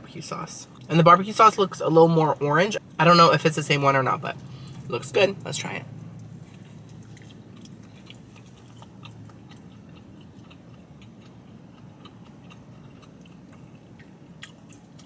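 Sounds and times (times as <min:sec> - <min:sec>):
low steady hum: 0:00.0 - 0:15.0
person chewing: 0:06.1 - 0:15.0.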